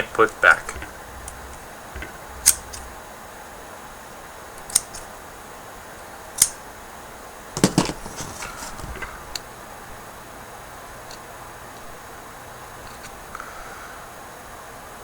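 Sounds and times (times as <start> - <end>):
scissors snipping: 2.0 - 2.9
cotton rustling: 7.6 - 9.0.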